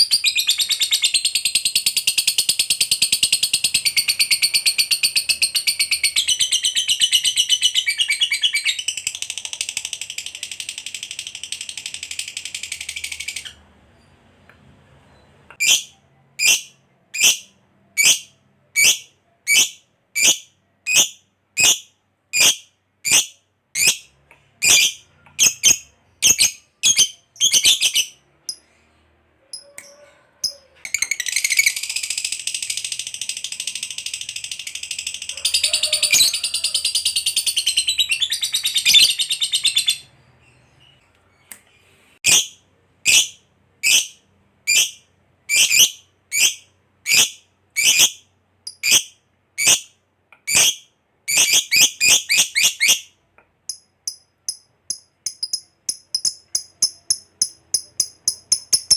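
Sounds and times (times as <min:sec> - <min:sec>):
lovebird chirping: 0:00.0 - 0:14.3, 0:15.0 - 0:58.9
lovebird rapid chatter: 0:30.4 - 0:39.8, 0:54.1 - 0:58.9.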